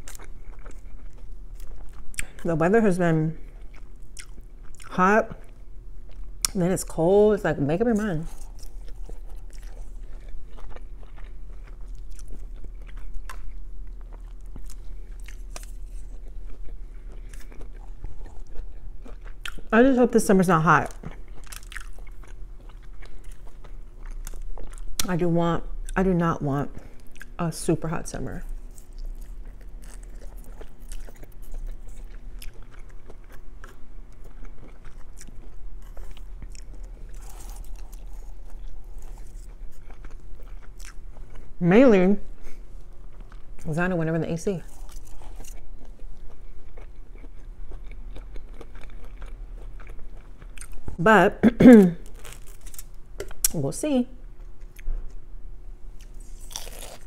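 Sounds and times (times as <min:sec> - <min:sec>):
close-up chewing with mouth clicks: 0:00.0 - 0:02.5, 0:03.4 - 0:06.6, 0:08.2 - 0:19.8, 0:20.6 - 0:25.1, 0:28.4 - 0:41.6, 0:42.4 - 0:43.7, 0:44.6 - 0:51.0, 0:56.0 - 0:57.0
steady low hum: 0:00.0 - 0:57.0.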